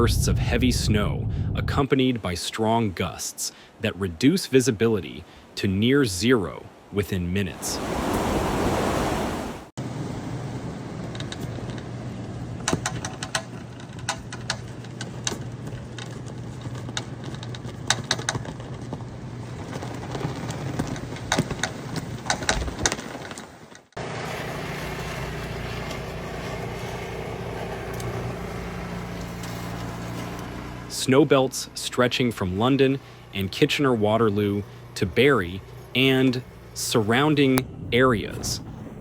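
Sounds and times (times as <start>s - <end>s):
car engine humming: 24.0s - 30.9s, 31.6s - 39.0s.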